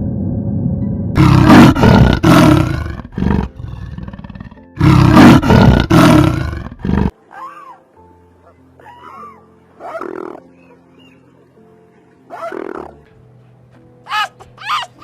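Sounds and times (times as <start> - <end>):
lion roaring: 1.2 - 7.1.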